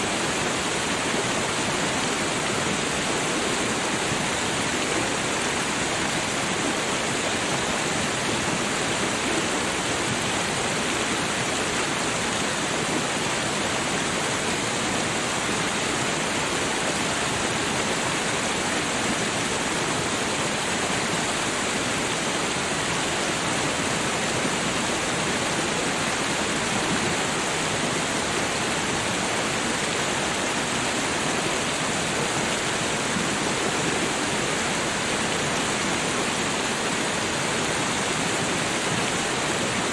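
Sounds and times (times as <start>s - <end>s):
babbling creek: 0.0s - 39.9s.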